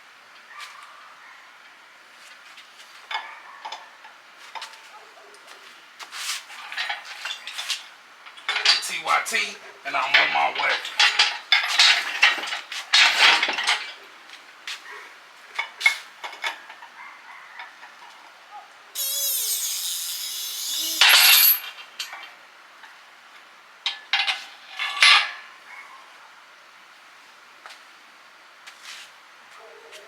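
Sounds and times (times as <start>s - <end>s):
metal scrape: 19.0s - 21.7s
rasping hiss: 19.0s - 21.7s
metal tools clinking: 19.0s - 22.1s.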